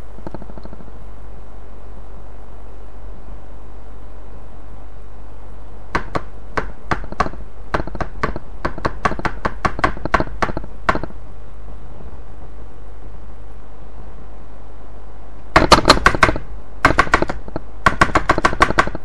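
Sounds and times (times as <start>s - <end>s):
steady low hum: 0.0s - 19.0s
sharp knocks or taps: 6.0s - 11.2s.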